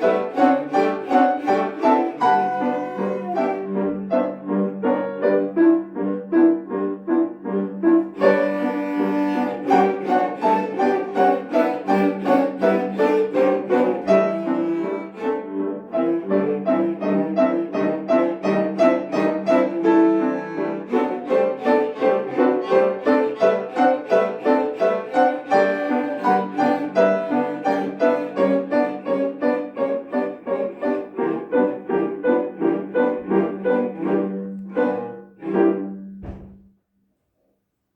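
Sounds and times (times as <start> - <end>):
piano accompaniment: 0.0 - 36.7
cellos playing quick notes: 8.2 - 15.3.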